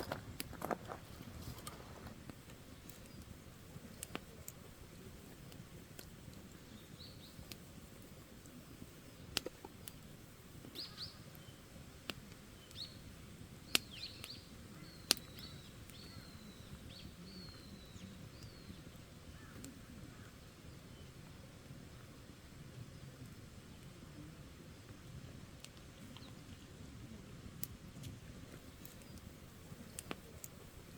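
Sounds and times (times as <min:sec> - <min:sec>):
sharp pops of fire: 0:00.0 - 0:20.4, 0:27.4 - 0:30.9
campfire crackling: 0:00.0 - 0:30.9
small birds chirping: 0:00.0 - 0:30.9.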